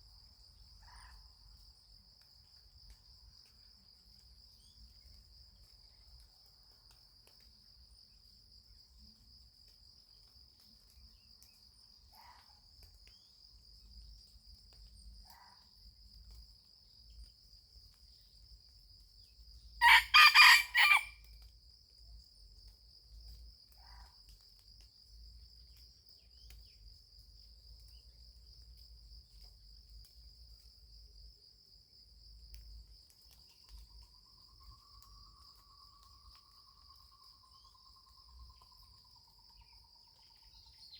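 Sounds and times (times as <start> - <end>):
high insect trill: 16.8 - 21.3
rooster crowing: 19.8 - 21.2.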